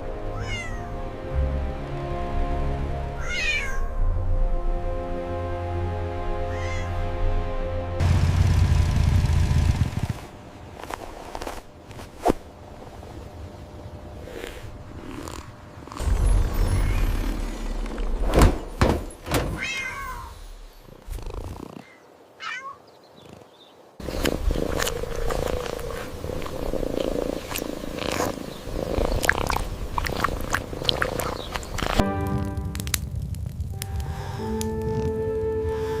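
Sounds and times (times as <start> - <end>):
cat meowing: 0.4 - 0.9, 3.2 - 3.9, 6.5 - 7.0, 19.6 - 20.4, 22.4 - 22.8
low hum: 1.0 - 11.5, 12.4 - 18.8.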